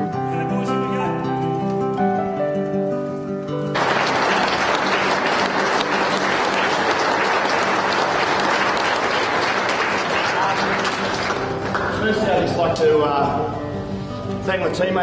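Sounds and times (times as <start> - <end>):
crowd applauding: 3.7 - 12.9.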